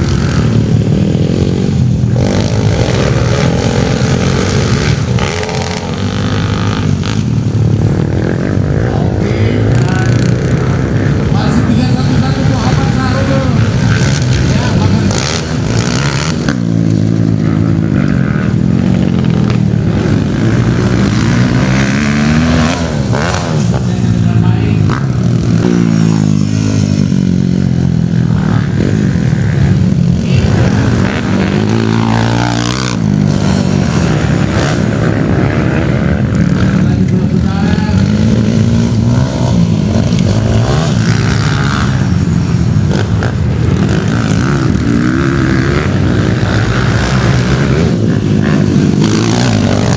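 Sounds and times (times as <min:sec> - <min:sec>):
motocross bike engines revving: 0:00.0 - 0:49.9.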